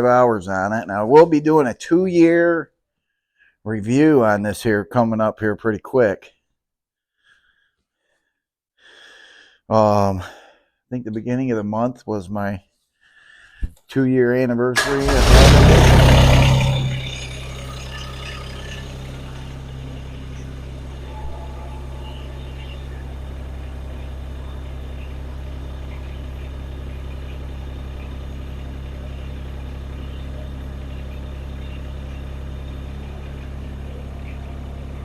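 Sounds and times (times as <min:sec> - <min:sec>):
diesel tractor engine idling: 0:14.8 - 0:35.0.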